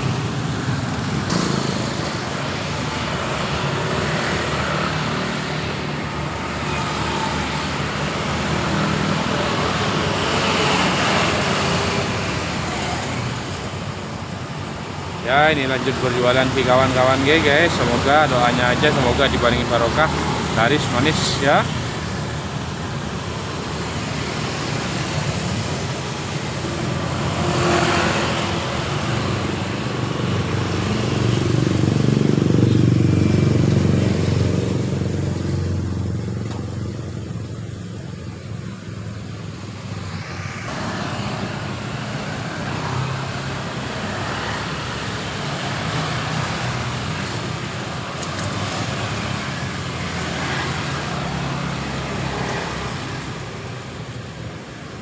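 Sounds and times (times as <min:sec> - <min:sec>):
road traffic passing: 0:00.0 - 0:55.0
loud vehicle passing: 0:23.2 - 0:53.6.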